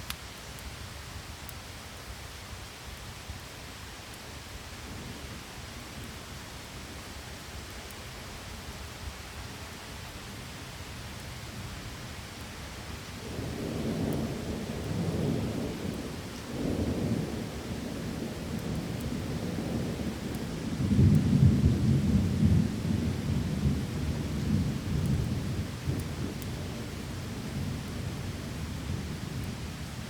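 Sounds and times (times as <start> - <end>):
steady rain: 0.0 - 30.0
rolling thunder: 13.2 - 29.9.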